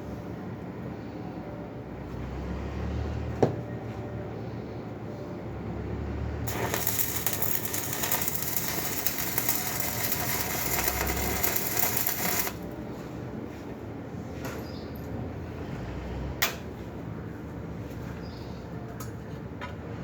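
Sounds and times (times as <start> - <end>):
arc welding crackling sizzle: 6.5 - 12.8.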